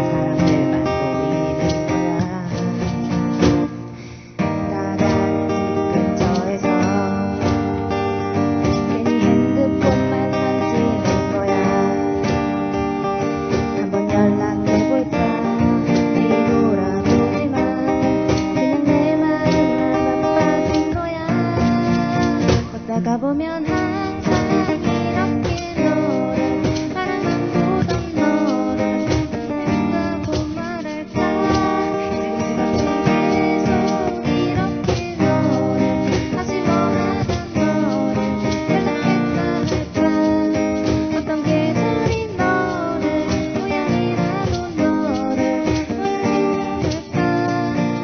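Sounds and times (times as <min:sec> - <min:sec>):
acoustic guitar strumming: 0:00.0 - 0:48.0
pop song: 0:00.0 - 0:48.0.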